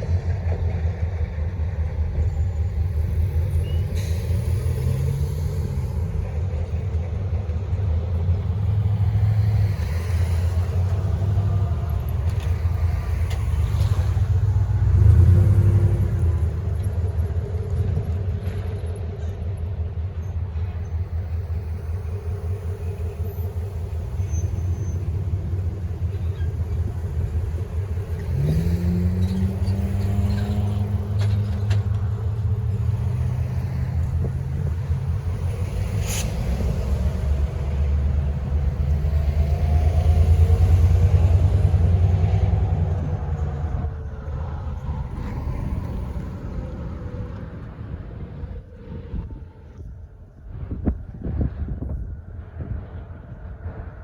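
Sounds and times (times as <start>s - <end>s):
engine revving: 27.8s - 32.0s.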